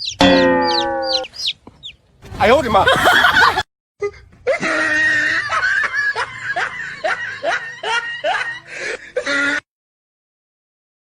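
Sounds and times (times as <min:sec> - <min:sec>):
person laughing: 0:02.6 - 0:03.6.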